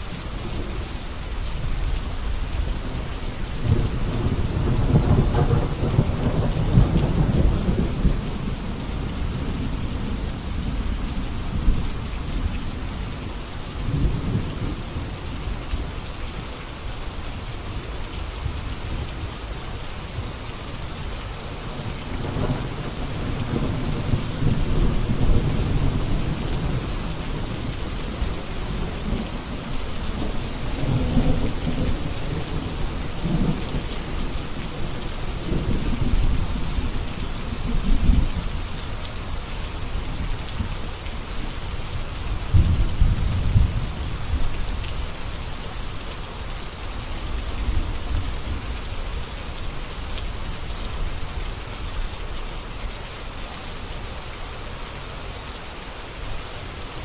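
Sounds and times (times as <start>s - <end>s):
heavy rain: 0.0s - 57.0s
low thunder rumbling: 2.7s - 12.3s, 21.7s - 38.6s, 42.4s - 45.0s.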